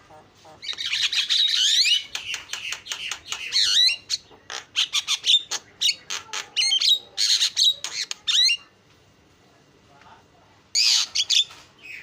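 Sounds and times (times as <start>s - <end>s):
bird singing harsh chatter: 0.5s - 8.8s, 10.7s - 12.0s.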